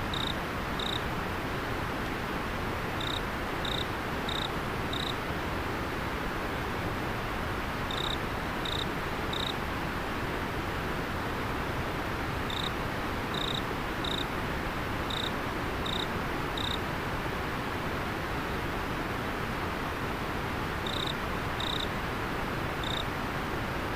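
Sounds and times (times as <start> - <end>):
cricket chirping: 0.0 - 1.0, 3.0 - 5.2, 7.9 - 9.6, 12.5 - 12.7, 13.3 - 14.3, 15.1 - 16.8, 20.8 - 21.9, 22.8 - 23.1.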